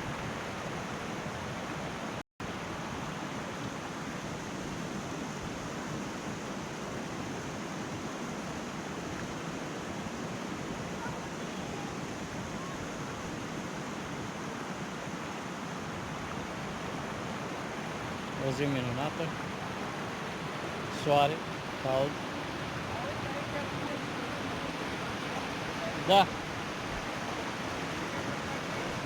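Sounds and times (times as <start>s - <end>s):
waterfall rushing: 14.8s - 29.0s.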